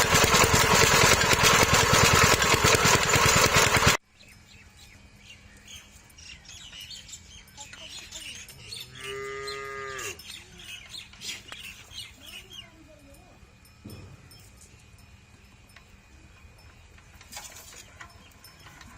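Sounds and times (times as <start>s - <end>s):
birds chirping: 4.1s - 13.1s
cow mooing: 8.8s - 10.2s.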